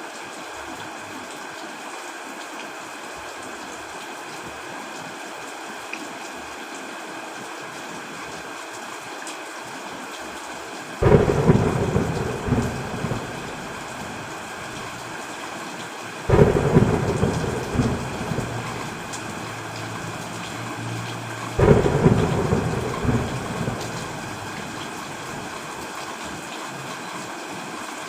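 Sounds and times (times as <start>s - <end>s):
steady rain: 0.0s - 28.0s
thunder claps rumbling: 11.0s - 15.2s, 16.3s - 25.6s.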